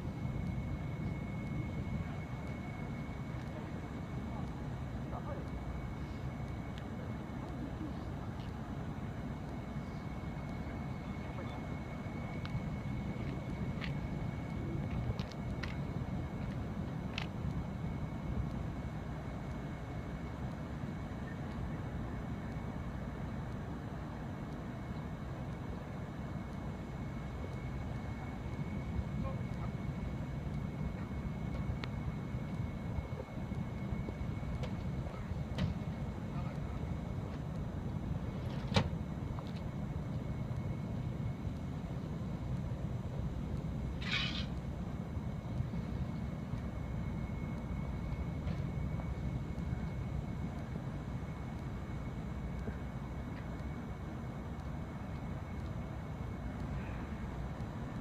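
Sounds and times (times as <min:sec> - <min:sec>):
faint high whine: 0:00.0 - 0:58.0
low outdoor rumble: 0:00.0 - 0:58.0
sharp click: 0:44.0 - 0:44.6
short chirp: 0:44.0 - 0:44.6.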